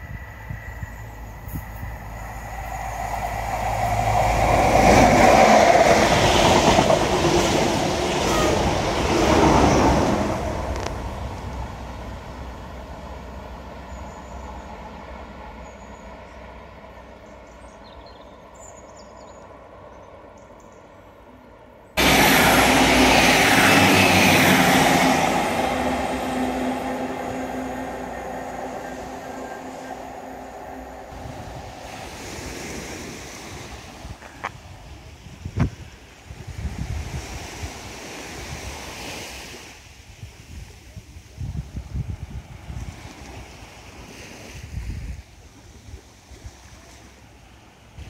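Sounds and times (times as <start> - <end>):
train wheels on rails: 0.0 - 17.2, 22.0 - 34.6.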